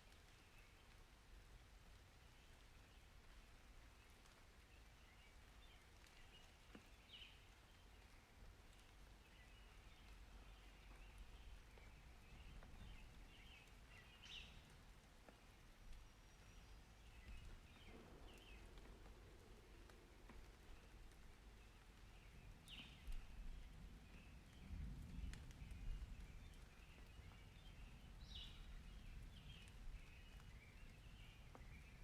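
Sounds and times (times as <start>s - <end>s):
low outdoor rumble: 7.6s - 32.0s.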